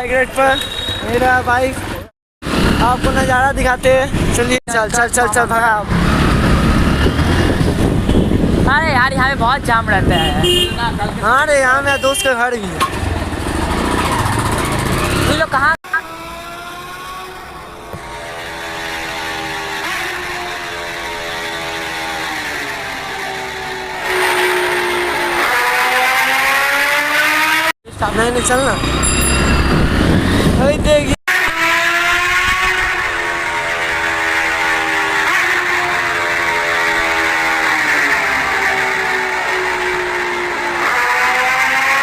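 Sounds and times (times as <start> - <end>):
wind and road noise: 0.0 - 42.0
wind noise on microphone: 5.8 - 11.2, 28.8 - 31.2, 32.1 - 33.2.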